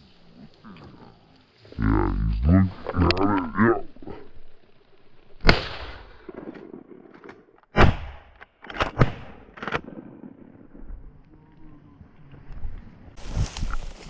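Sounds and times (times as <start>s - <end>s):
faint clicks: 0.5s - 5.2s
sharp loud bangs: 7.7s - 9.5s.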